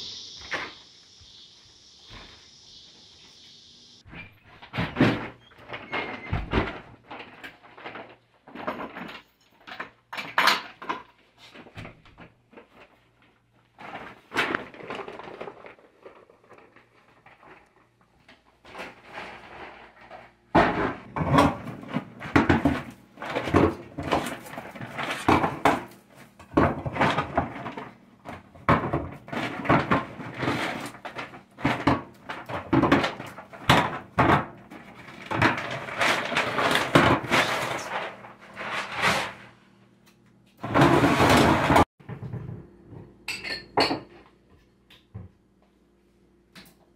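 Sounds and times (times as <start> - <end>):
footsteps: 0.0 - 3.6.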